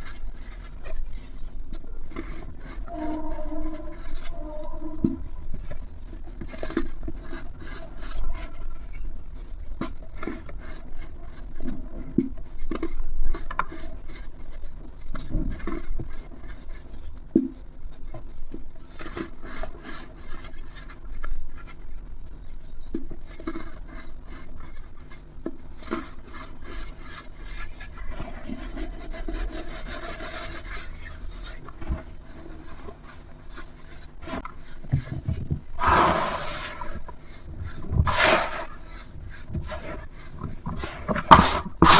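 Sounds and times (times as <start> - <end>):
dry rubbing and crumbling: 0.0 - 41.9.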